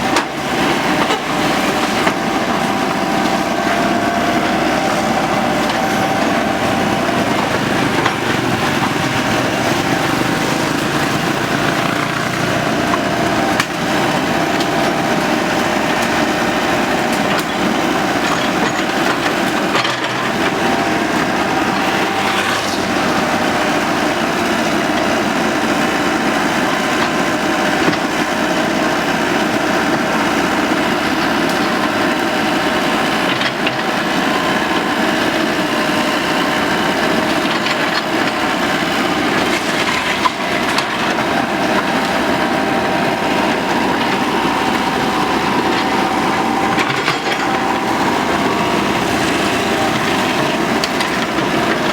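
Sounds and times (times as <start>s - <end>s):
steady whine: 0.0s - 24.2s
excavator engine running: 0.0s - 51.9s.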